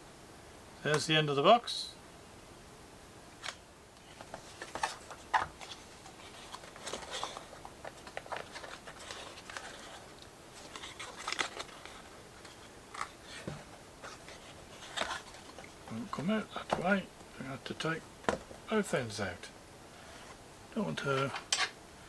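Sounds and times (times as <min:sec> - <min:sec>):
cardboard packaging handled: 0:03.4 - 0:17.0.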